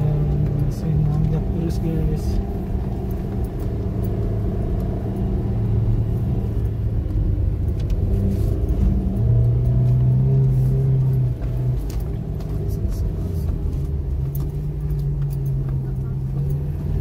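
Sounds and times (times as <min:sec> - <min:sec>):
car engine hum: 0:00.0 - 0:17.0
road rumble: 0:00.0 - 0:17.0.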